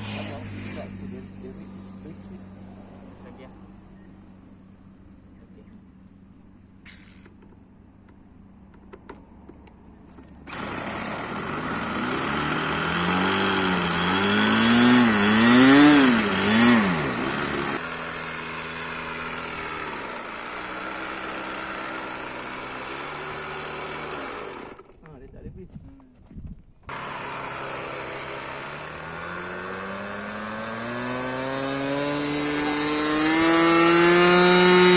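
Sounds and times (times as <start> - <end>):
model aircraft engine revving: 0.0 - 3.4, 10.4 - 25.1, 26.9 - 34.9.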